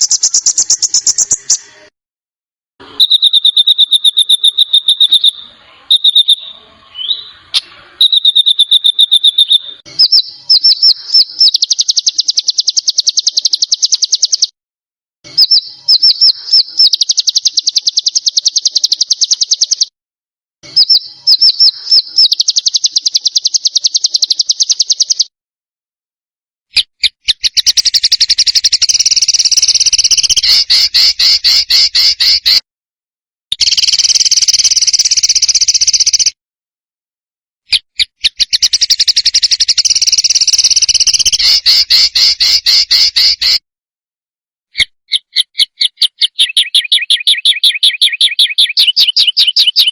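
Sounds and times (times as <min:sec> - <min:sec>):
songbird trills: 0:00.0 - 0:01.7, 0:03.0 - 0:14.5, 0:15.3 - 0:19.9, 0:20.7 - 0:25.3, 0:26.8 - 0:32.6, 0:37.7 - 0:43.6, 0:44.8 - 0:49.9.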